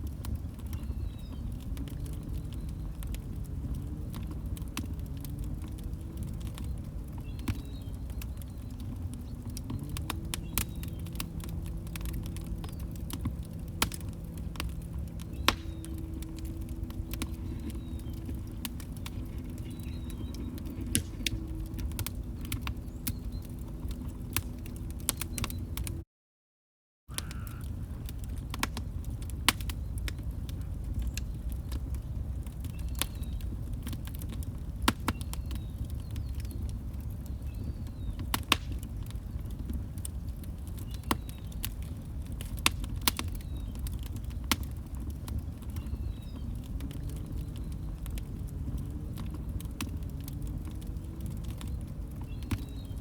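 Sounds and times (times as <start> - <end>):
log fire crackling: 0.0 - 26.0, 27.1 - 53.0.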